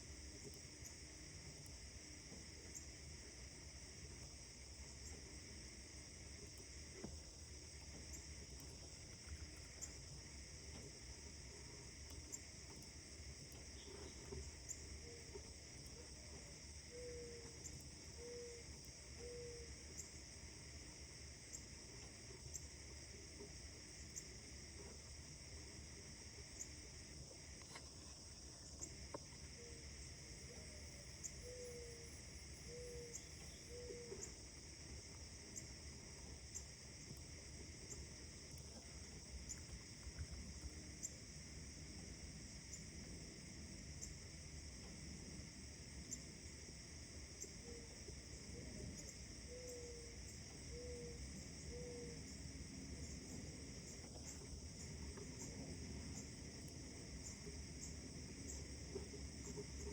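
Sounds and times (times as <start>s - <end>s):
high insect trill: 0.0s - 59.9s
steady background hiss: 0.0s - 59.9s.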